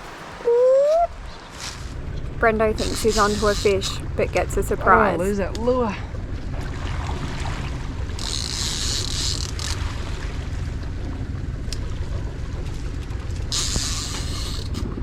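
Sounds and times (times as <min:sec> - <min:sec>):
low rumble of wind and water: 0:00.0 - 0:15.0
fishing reel clicker buzzing: 0:02.8 - 0:04.0, 0:08.2 - 0:09.8, 0:13.5 - 0:14.8.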